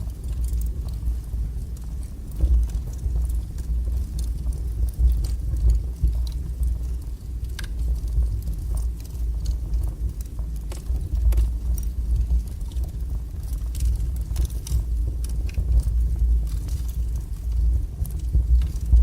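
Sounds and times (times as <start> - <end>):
burning wood crackling: 0.0 - 19.0
fire flames rumbling: 0.0 - 19.0.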